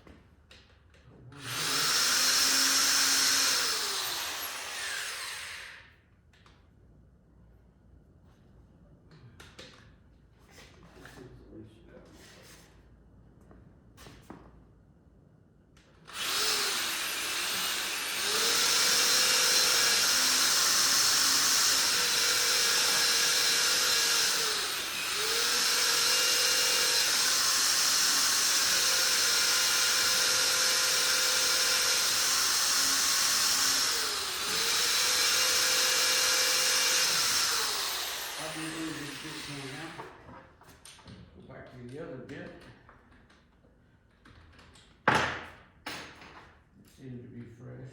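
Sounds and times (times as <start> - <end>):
electric drill boring into concrete: 1.4 - 6.0, 16.1 - 40.0.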